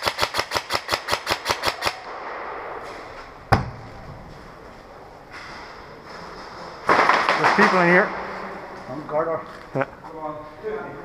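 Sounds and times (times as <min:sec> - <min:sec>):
airsoft gun rapid shots: 0:00.0 - 0:02.1.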